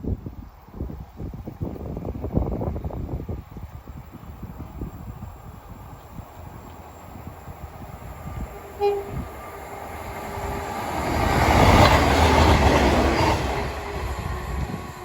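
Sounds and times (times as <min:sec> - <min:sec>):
train rumbling past: 0:03.9 - 0:15.0
short train toot: 0:08.6 - 0:09.3.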